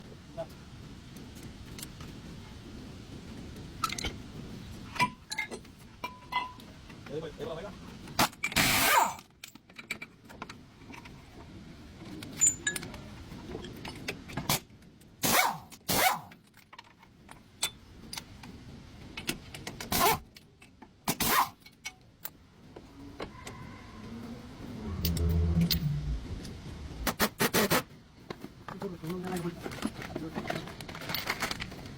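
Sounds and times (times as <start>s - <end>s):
short low hum: 23.8s - 27.2s.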